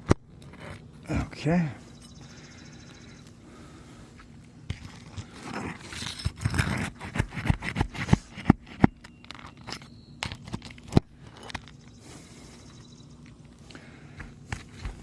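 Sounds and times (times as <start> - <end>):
shingles crunching: 4.1 - 15.0
roof tool scraping under shingles: 4.7 - 11.4.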